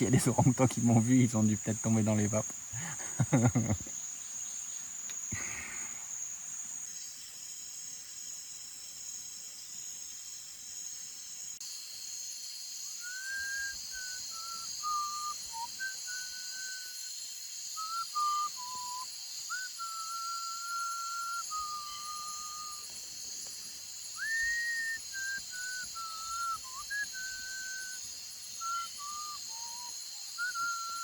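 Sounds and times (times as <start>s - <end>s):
cicadas and crickets buzzing: 0.0s - 31.0s
whistled notes stepping down: 24.2s - 28.0s, 28.6s - 31.0s.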